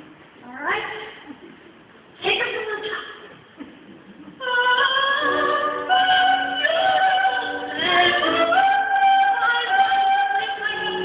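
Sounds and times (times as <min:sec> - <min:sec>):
steady lower accompaniment: 0:03.6 - 0:11.0
woman singing opera: 0:04.4 - 0:11.0.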